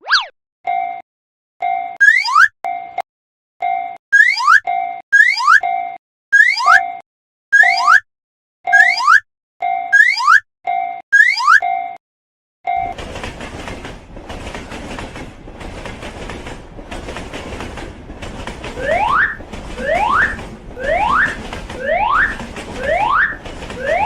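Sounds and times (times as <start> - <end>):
cartoon rising tones: 0.0 - 0.3
train wheels clattering: 12.8 - 24.0.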